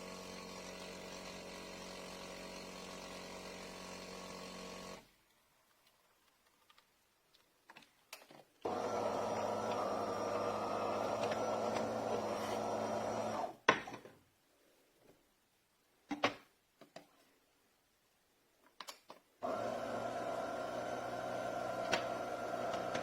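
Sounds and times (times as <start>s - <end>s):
espresso machine motor: 8.7s - 13.5s, 19.4s - 23.0s.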